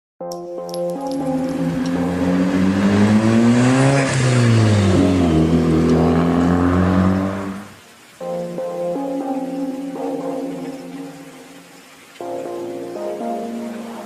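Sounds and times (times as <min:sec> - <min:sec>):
car engine revving: 0:01.3 - 0:07.8.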